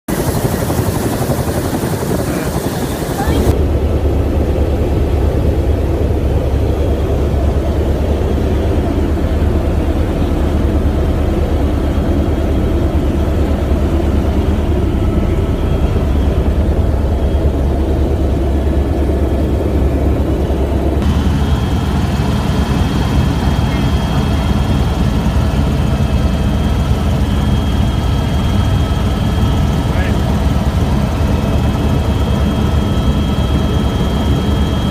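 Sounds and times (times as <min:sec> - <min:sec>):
helicopter rotor and engine: 0:00.1 - 0:34.9.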